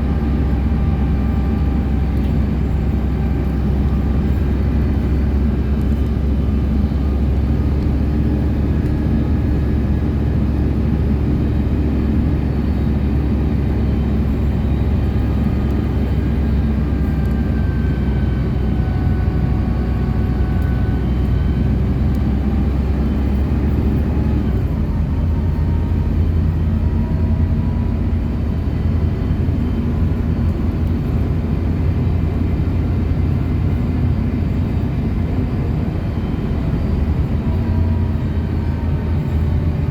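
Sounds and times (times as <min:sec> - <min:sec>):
bus engine drone: 0:00.0 - 0:39.9
road noise: 0:00.0 - 0:39.9.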